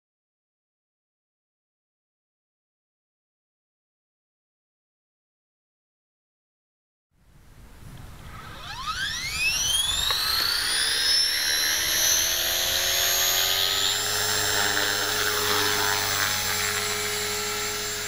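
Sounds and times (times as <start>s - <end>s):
rc helicopter motor whine: 8.0s - 18.0s.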